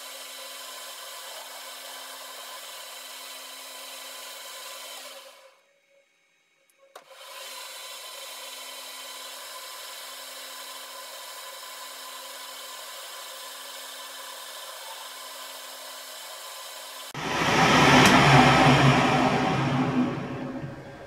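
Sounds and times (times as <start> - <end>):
metal lathe cutting hiss: 0.0 - 5.2, 7.1 - 21.0
deep machine running: 17.2 - 21.0.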